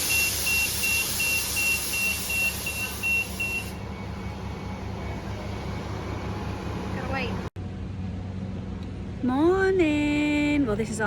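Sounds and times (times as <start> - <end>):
vehicle warning beeper: 0.0 - 3.8.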